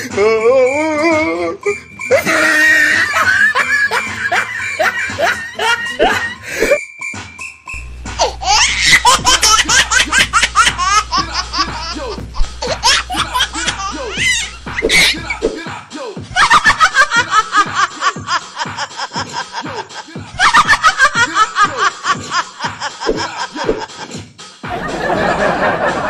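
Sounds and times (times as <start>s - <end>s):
baby laughing: 1.6s - 6.8s, 8.1s - 15.7s, 16.3s - 24.2s.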